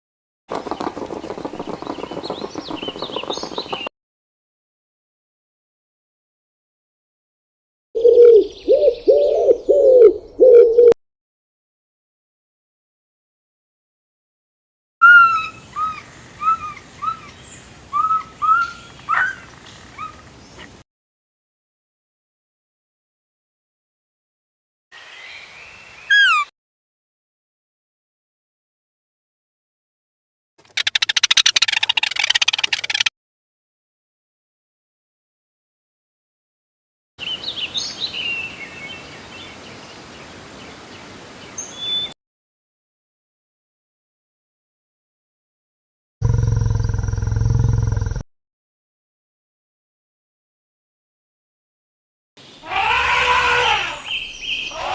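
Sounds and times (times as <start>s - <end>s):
small birds chirping: 0.5s - 3.9s, 30.8s - 33.1s, 37.2s - 42.2s, 54.0s - 54.9s
steady outdoor hiss: 0.6s - 3.9s, 15.4s - 20.8s, 25.0s - 26.1s, 37.2s - 42.1s, 52.4s - 54.9s
animal giving short calls: 52.6s - 54.1s.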